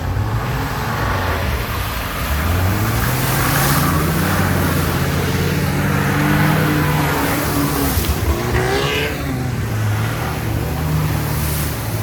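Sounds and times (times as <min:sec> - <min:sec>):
jeep engine revving: 0:00.0 - 0:12.0.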